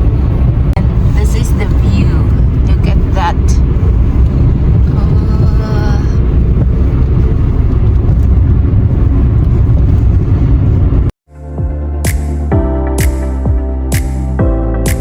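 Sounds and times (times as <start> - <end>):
car engine and tyre rumble: 0.0 - 15.0
electronic music: 11.3 - 15.0.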